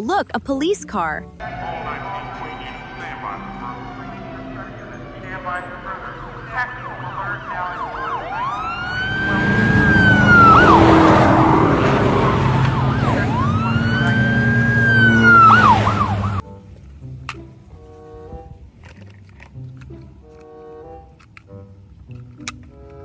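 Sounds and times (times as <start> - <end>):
low rumble: 1.3 - 16.4
police siren yelping and wailing: 1.4 - 16.4.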